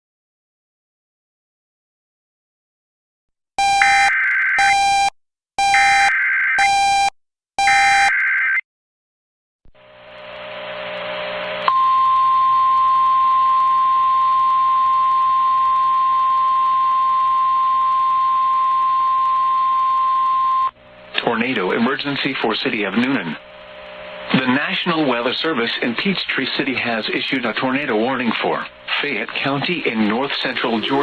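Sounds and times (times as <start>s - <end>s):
steady high alert tone: 3.6s - 8.6s, 24.3s - 25.3s
static: 13.0s - 31.0s.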